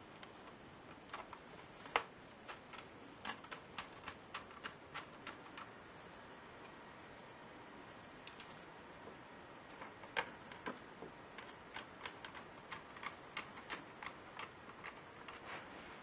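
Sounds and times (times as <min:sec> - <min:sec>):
laptop keys clicking: 0:00.2 - 0:05.7, 0:08.3 - 0:08.6, 0:09.7 - 0:15.4.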